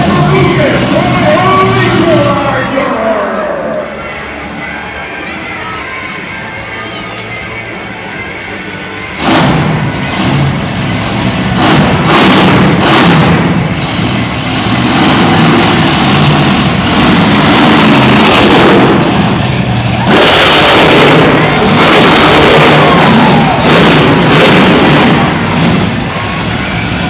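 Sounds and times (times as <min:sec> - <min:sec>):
monster truck engine revving: 0:00.0 - 0:05.2, 0:09.0 - 0:27.0.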